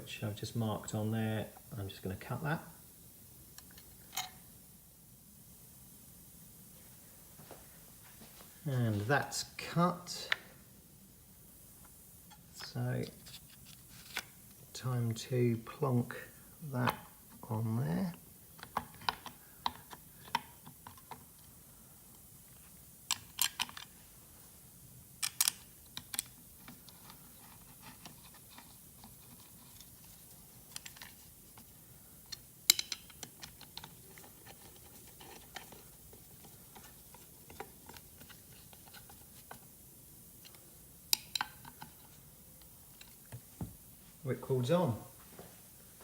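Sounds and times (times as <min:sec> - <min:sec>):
small hard parts clicking: 0:25.2 - 0:30.1, 0:32.2 - 0:39.7.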